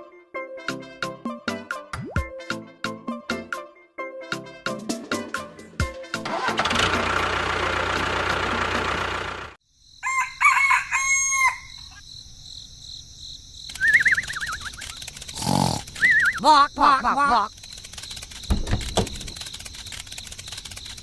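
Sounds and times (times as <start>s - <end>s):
rooster crowing: 10.0s - 12.0s
wavering high whistle: 13.8s - 14.8s.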